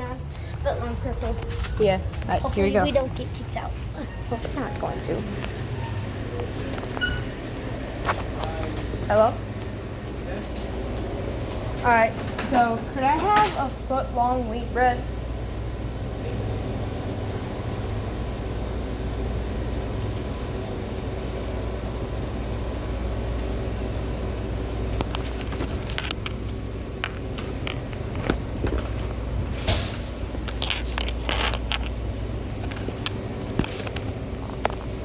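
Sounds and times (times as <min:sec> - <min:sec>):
machinery humming: 0:00.0 - 0:35.0
food preparation clicks and rustles: 0:24.9 - 0:35.0.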